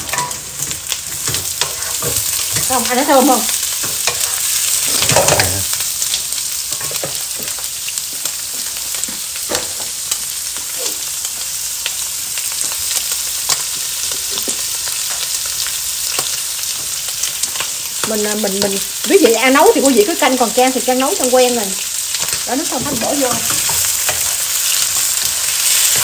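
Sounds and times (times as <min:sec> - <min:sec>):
wooden spatula stirring in wok: 0:00.0 - 0:05.4
meat and onion sizzling: 0:00.0 - 0:26.0
small pops of frying: 0:00.0 - 0:26.0.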